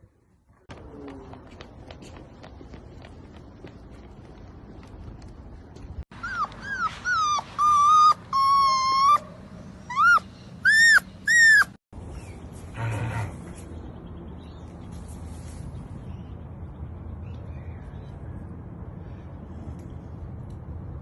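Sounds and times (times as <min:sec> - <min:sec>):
dog whining and yelping: 0:06.2 - 0:11.8.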